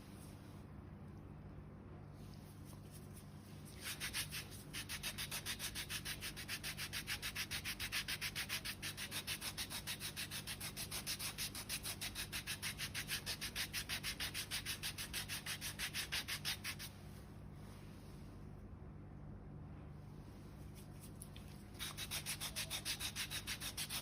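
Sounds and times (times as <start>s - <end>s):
foot file rasping on skin: 3.8s - 16.9s, 21.8s - 24.0s.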